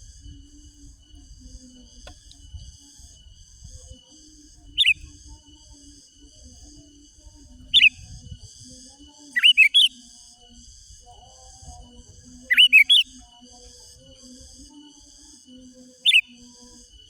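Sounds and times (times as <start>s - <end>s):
steady high hum: 0.0s - 17.0s
bird whistled calls: 4.7s - 5.1s, 7.7s - 8.0s, 9.4s - 10.0s, 12.5s - 13.2s, 16.0s - 16.4s.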